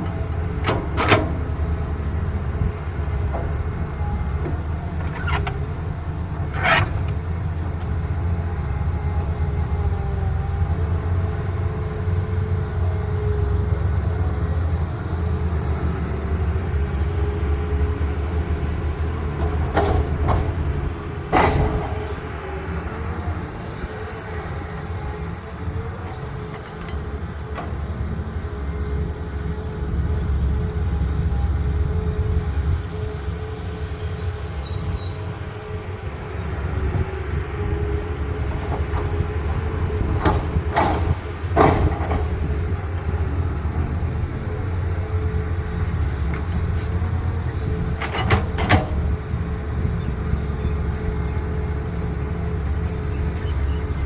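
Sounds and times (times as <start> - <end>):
diesel engine running: 0.0 - 54.0
hydraulic whine: 3.2 - 8.0.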